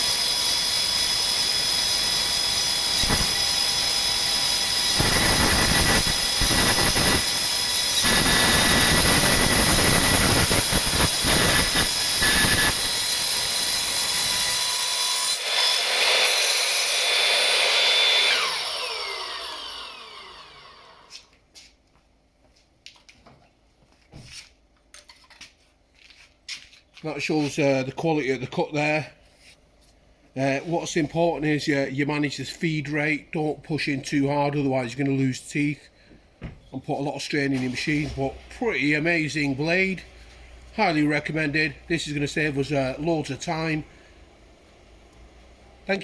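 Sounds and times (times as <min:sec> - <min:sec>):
circular saw cutting steel: 0:00.0 - 0:21.1
saw winding down: 0:00.0 - 0:21.2.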